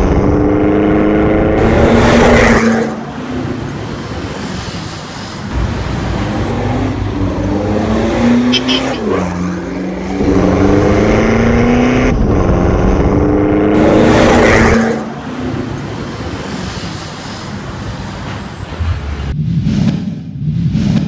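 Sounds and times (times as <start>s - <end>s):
diesel engine accelerating: 5.5s - 19.3s.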